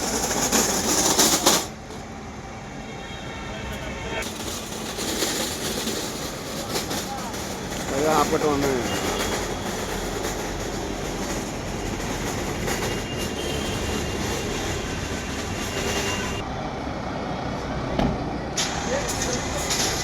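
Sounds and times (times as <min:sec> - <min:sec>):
moving vehicle rumbling: 0:00.0 - 0:02.6, 0:03.5 - 0:20.0.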